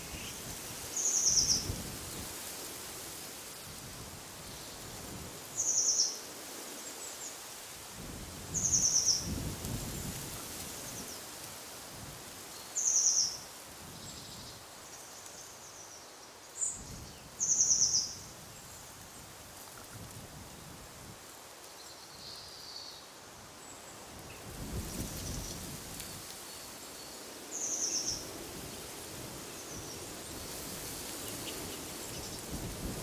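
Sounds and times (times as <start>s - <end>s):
wind hissing: 0.0s - 15.9s, 23.2s - 33.0s.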